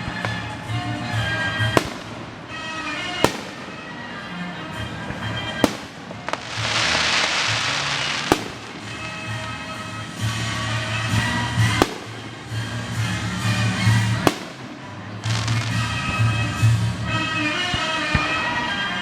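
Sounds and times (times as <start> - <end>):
firework hissing crackle: 0.0 - 18.7
music: 0.0 - 19.0
firework shell bangs: 1.6 - 4.2, 5.1 - 9.5, 11.0 - 16.3.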